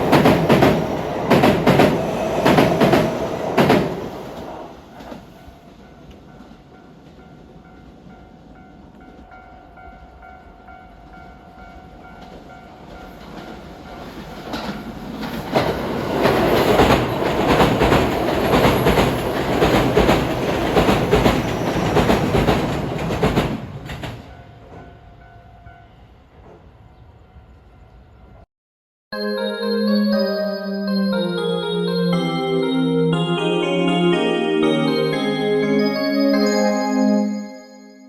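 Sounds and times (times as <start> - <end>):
train wheels clacking over rails: 0.0 - 7.2, 12.2 - 24.9.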